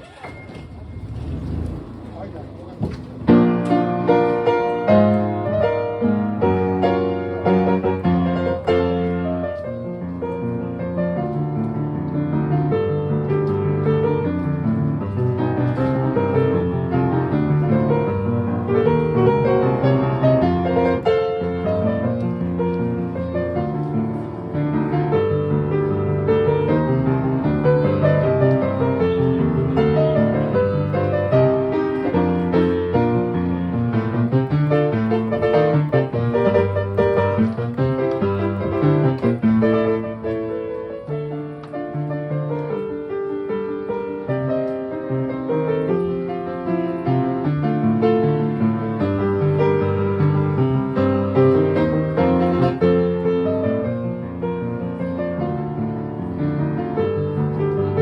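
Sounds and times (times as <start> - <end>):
solo piano: 0.0 - 58.0.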